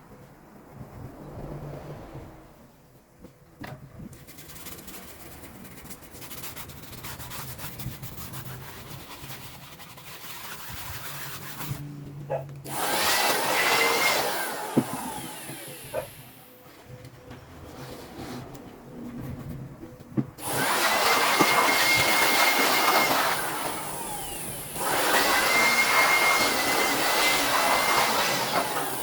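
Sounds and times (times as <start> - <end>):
small blowing motor whining: 12.6 - 17.2, 20.4 - 29.0.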